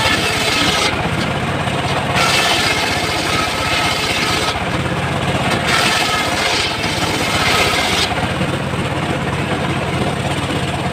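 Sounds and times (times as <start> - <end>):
saw blade cutting wood: 0.0 - 4.8, 5.4 - 8.4
sawmill engine running: 0.0 - 10.9.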